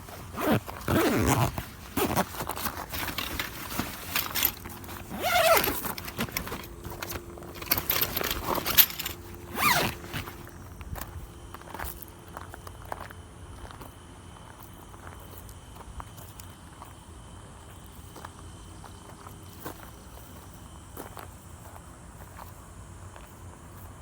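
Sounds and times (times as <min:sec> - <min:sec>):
fabric rustling: 0:00.0 - 0:10.5
tent zipper pulled: 0:00.1 - 0:10.5
handling clicks and knocks: 0:00.1 - 0:11.1.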